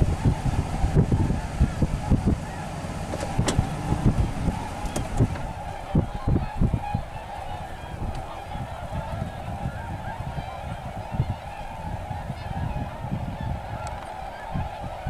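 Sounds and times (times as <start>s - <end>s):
low rumble: 0.0s - 5.6s
swans calling: 0.0s - 8.4s.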